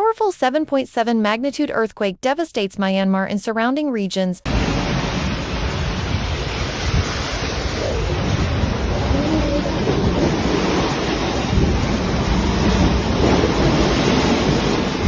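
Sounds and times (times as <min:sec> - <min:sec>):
loud rushing noise: 0:04.5 - 0:15.0
faint voices: 0:07.7 - 0:10.3.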